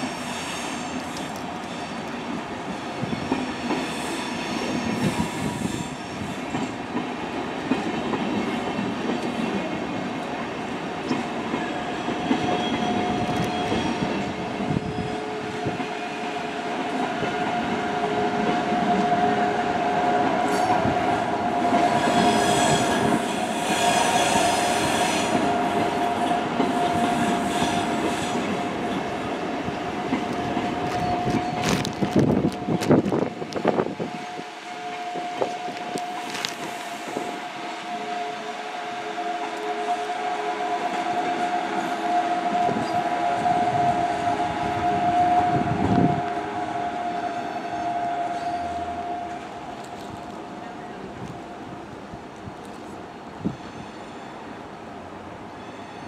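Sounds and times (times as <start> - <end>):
hiss: 0.0 - 1.3
train wheels rumbling on rails: 0.0 - 54.3.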